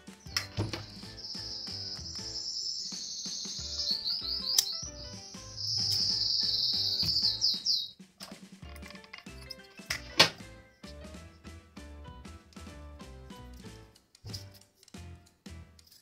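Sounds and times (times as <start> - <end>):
bird singing trills: 0.0 - 8.0
soft background music: 0.0 - 16.0.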